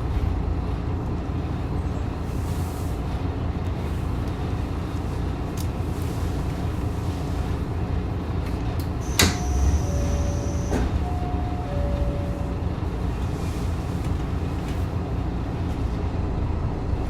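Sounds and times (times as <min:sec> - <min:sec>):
train carriage rumble: 0:00.0 - 0:17.0
two-note alternating tone: 0:09.4 - 0:12.9.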